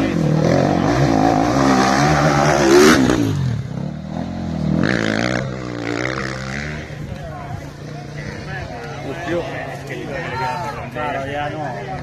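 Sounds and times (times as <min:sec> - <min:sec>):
motorcycle engine revving past: 0:00.0 - 0:07.0.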